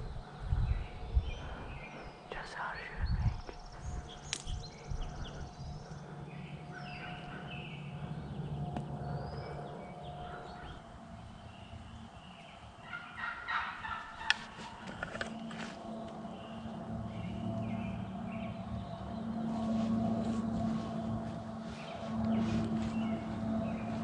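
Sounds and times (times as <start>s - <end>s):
songbirds calling: 0.0s - 24.0s
turkey gobbling: 12.8s - 14.8s.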